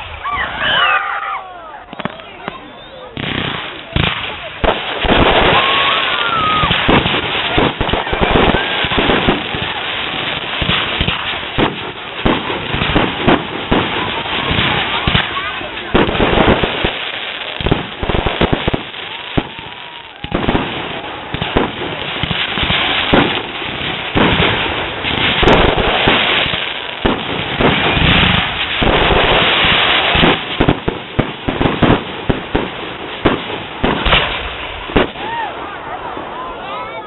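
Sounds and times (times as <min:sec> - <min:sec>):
fireworks bursting bangs: 0:00.0 - 0:37.0
fireworks crackle: 0:00.0 - 0:37.0.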